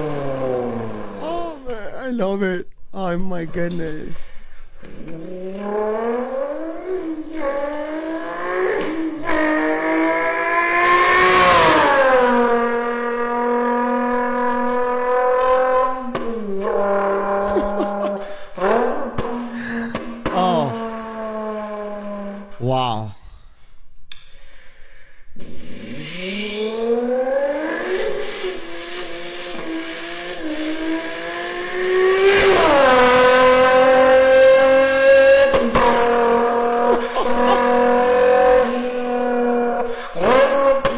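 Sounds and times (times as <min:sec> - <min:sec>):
person imitating car engine: 0:00.0 - 0:02.4, 0:17.2 - 0:21.0, 0:35.2 - 0:40.9.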